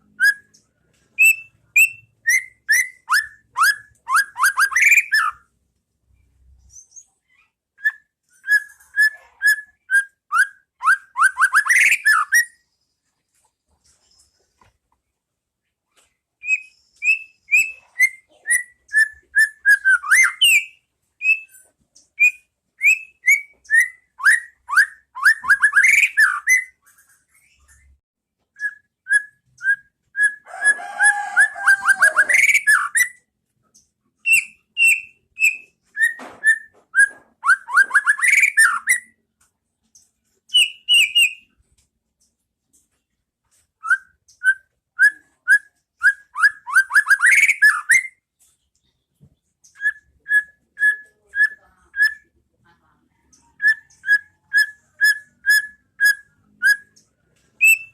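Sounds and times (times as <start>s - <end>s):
bird singing whistled trills: 0.0s - 0.6s, 1.2s - 5.5s, 7.8s - 12.6s, 16.4s - 21.6s, 22.2s - 26.8s, 28.6s - 30.5s, 34.2s - 39.2s, 40.5s - 41.5s, 43.8s - 48.2s, 57.6s - 57.9s.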